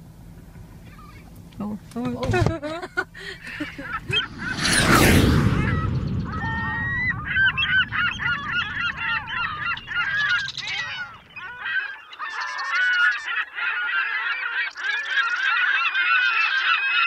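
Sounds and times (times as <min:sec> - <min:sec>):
seagulls calling: 0:00.4 - 0:01.4, 0:03.2 - 0:17.0
low rumble: 0:03.4 - 0:11.7.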